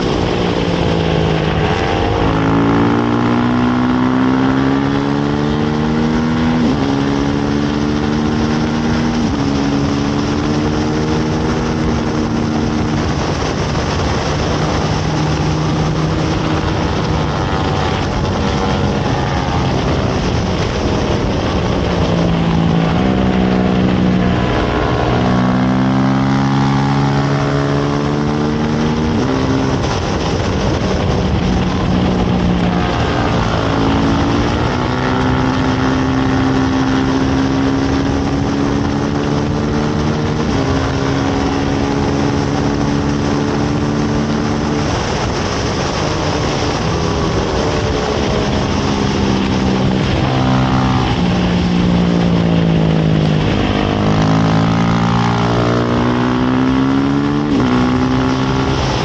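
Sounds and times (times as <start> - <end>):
racing motorcycle engine: 0.0 - 59.0
wind rush: 0.0 - 59.0.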